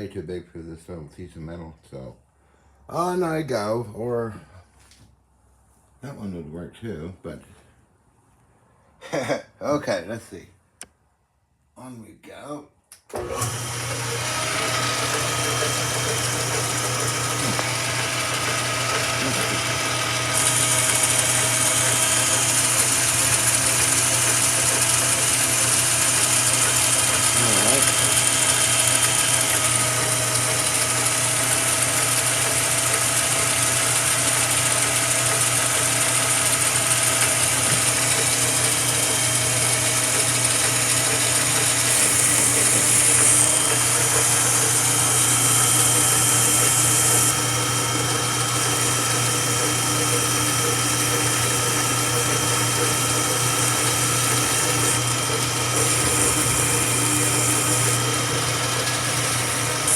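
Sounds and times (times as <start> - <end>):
metal lathe motor hum: 13.1 - 59.9
high hiss of cutting tool: 41.9 - 43.7.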